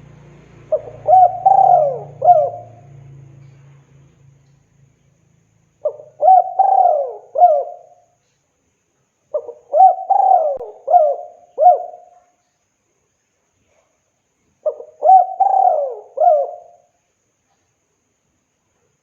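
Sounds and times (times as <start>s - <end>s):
dove cooing: 0.6s - 3.0s, 5.8s - 8.0s, 9.3s - 12.1s, 14.6s - 16.9s.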